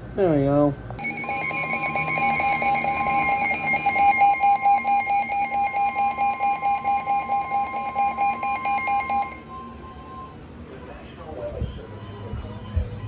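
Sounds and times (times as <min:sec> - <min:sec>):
steady warning alarm tone: 0:01.0 - 0:10.4.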